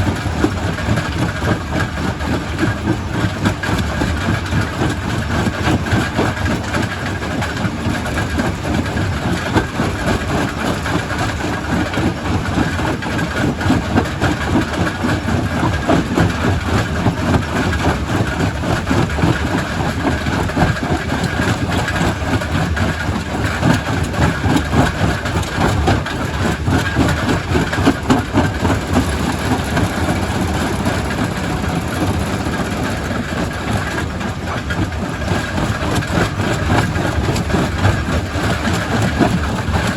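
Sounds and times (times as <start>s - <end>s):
rock crusher rumbling: 13.6s - 39.9s.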